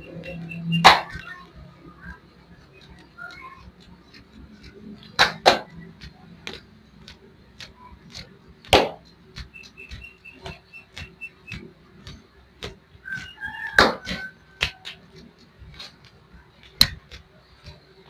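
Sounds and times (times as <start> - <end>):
faint high chirps: 0.0 - 3.7, 9.5 - 11.6.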